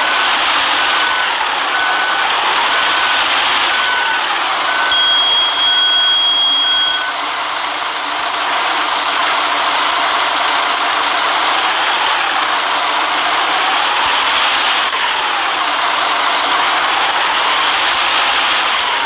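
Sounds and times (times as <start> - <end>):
warning beeper: 0.0 - 8.6
high steady tone: 0.0 - 8.9
bus running: 0.0 - 19.0.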